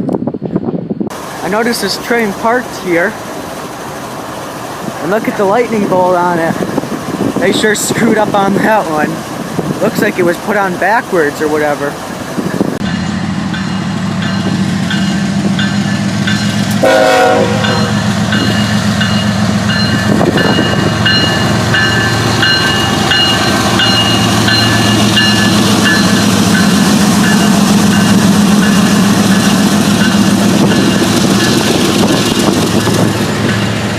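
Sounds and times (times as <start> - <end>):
diesel locomotive engine humming: 0.0 - 33.9
horn blast: 16.8 - 18.0
high ringing: 17.4 - 31.8.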